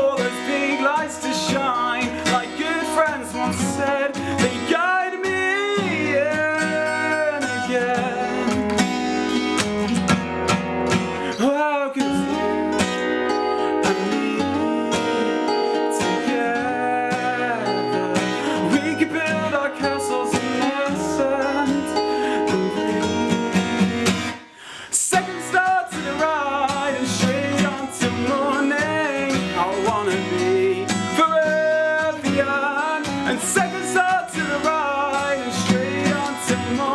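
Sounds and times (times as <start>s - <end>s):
acoustic guitar strumming: 0.0s - 36.9s
wavering melody line: 12.2s - 24.1s.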